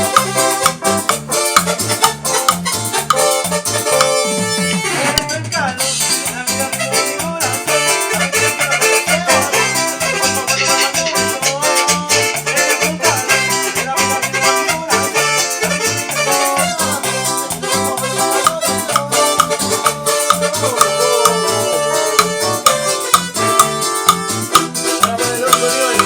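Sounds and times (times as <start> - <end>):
cumbia music: 0.0 - 26.0.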